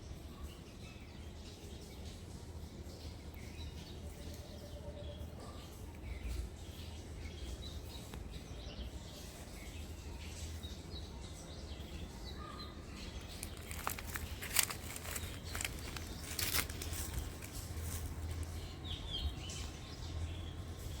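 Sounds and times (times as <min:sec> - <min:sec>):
small birds chirping faintly: 0:00.0 - 0:21.0
low outdoor rumble: 0:02.1 - 0:21.0
short rustling noises: 0:13.3 - 0:18.6.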